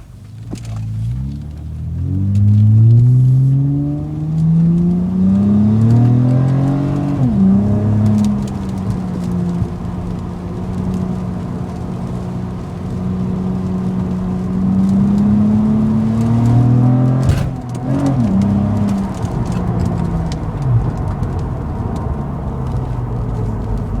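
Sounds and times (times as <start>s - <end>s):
car exhaust droning: 0.0s - 24.0s
sharp knock: 17.3s - 17.8s.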